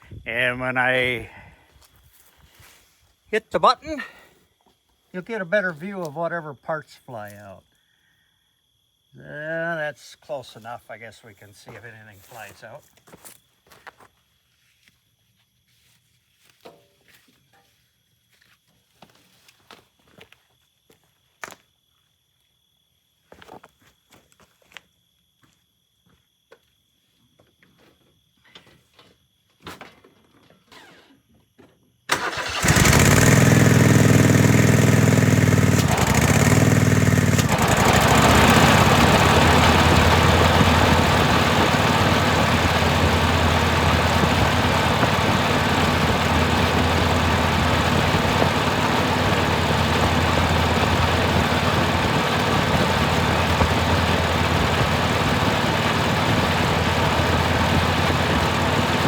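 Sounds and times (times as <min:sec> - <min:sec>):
mower engine running: 0:32.1 - 0:59.0.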